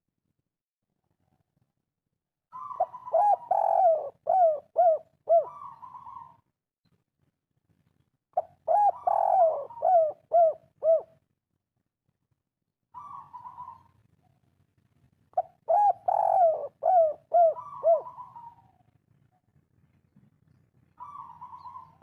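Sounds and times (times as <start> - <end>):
dove cooing: 2.5 - 6.4, 8.4 - 11.2, 13.0 - 14.0, 15.4 - 18.8, 21.0 - 22.0.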